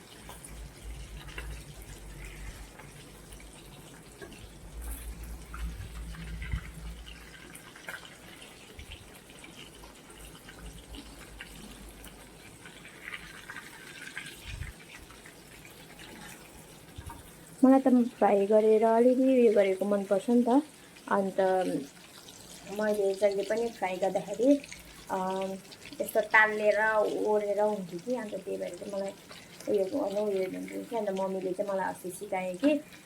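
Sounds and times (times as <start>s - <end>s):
oil popping and crackling: 0.0s - 18.4s
fish sizzling in a pan: 0.0s - 33.0s.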